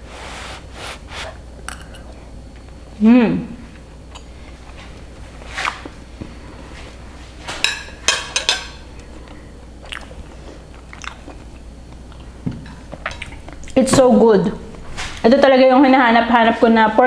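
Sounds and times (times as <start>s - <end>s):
person chewing with wet smacks: 3.7s - 6.4s, 9.0s - 13.8s.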